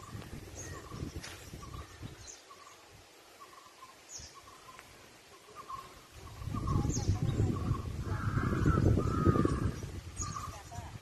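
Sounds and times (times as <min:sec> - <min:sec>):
birds chirping: 0:00.0 - 0:11.0
crow cawing: 0:08.0 - 0:09.8.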